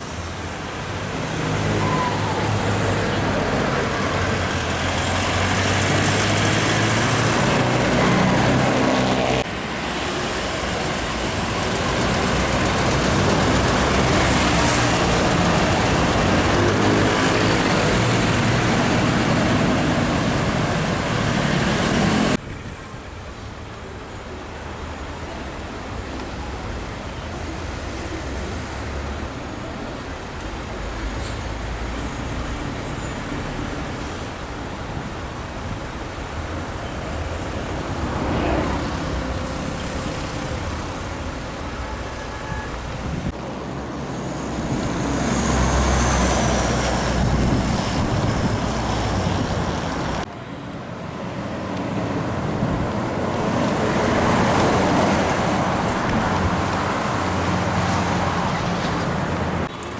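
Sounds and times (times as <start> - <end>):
expressway traffic noise: 0.0 - 59.9
vehicle passing: 1.2 - 22.8, 37.1 - 41.8.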